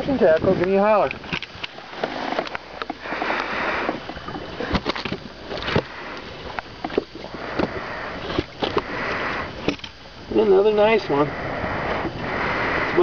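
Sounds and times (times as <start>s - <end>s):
water splashing: 0.0s - 13.0s
knocks and clicks on a boat: 0.2s - 10.0s.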